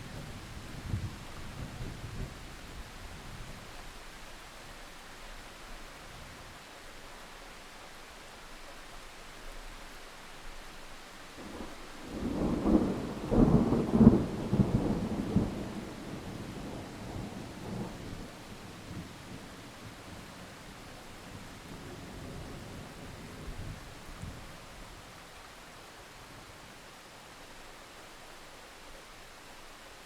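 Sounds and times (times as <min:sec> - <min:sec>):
steady rain: 0:00.0 - 0:30.0
thunder rumbling: 0:11.5 - 0:20.2.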